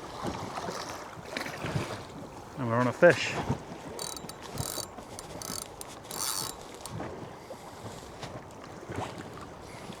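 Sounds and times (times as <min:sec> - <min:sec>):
fishing reel whirring: 0:04.0 - 0:07.0.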